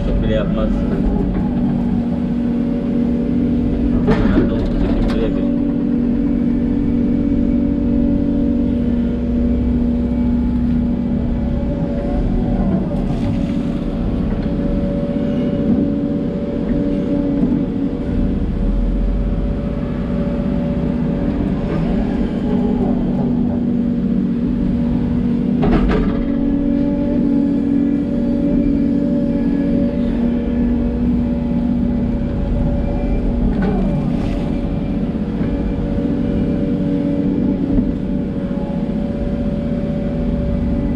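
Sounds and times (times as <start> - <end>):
excavator diesel engine running: 0.0 - 40.9
hydraulic whine: 0.0 - 40.9.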